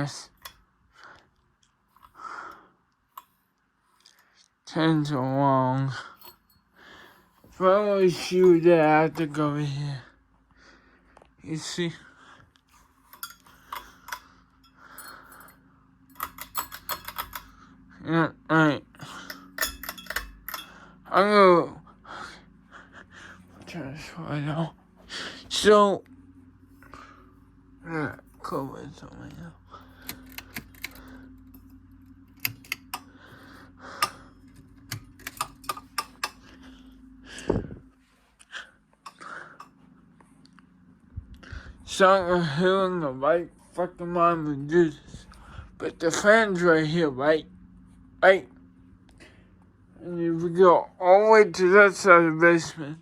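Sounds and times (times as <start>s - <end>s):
faint steady hum: 0.0s - 53.0s
small hard clicks and clinks: 6.2s - 6.7s, 13.0s - 17.6s, 19.1s - 21.0s, 30.0s - 33.2s, 33.9s - 36.6s, 39.0s - 39.8s.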